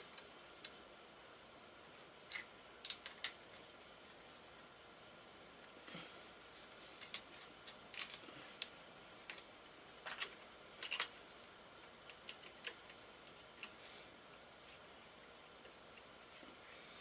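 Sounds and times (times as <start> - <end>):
metal parts and tools clicking: 7.0 - 8.2, 10.0 - 11.2.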